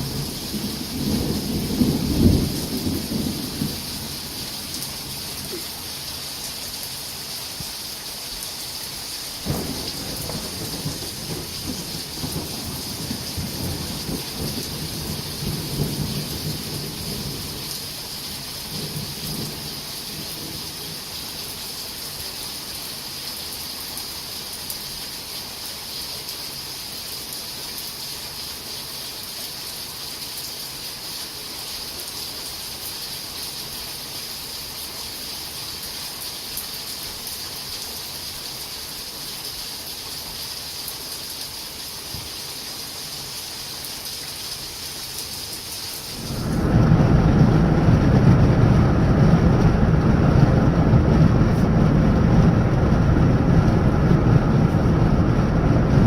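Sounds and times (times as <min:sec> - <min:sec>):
thunder rumbling: 0:00.0 - 0:05.6, 0:09.4 - 0:17.6, 0:46.1 - 0:56.0
steady rain falling: 0:00.0 - 0:56.0.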